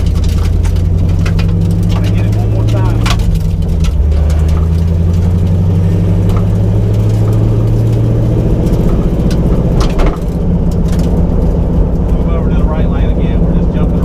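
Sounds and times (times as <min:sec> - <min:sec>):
car engine drone from inside cabin: 0:00.0 - 0:14.0.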